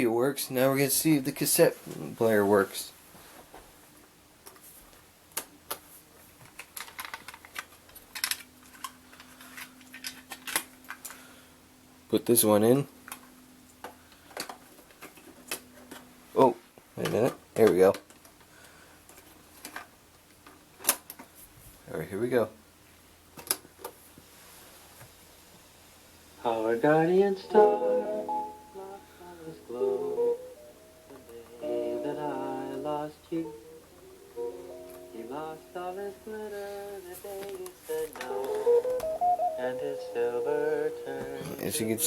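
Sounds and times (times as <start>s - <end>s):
faint cassette tape hiss: 0.0s - 24.3s, 26.3s - 42.0s
faint steady hum: 0.0s - 42.0s.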